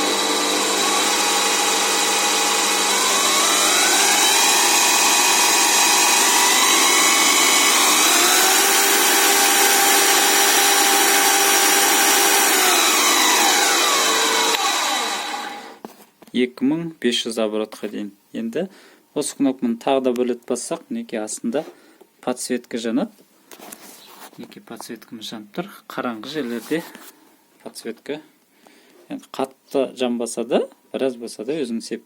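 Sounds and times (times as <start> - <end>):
drill press motor whine: 0.0 - 15.8.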